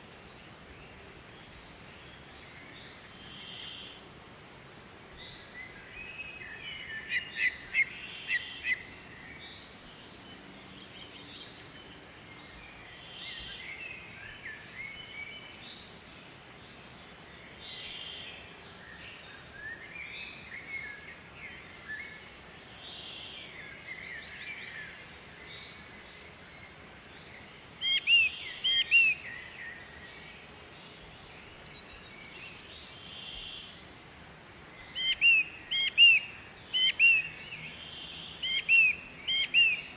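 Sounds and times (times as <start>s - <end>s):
birds chirping and singing: 5.3s - 16.0s, 26.6s - 33.7s, 34.8s - 39.9s.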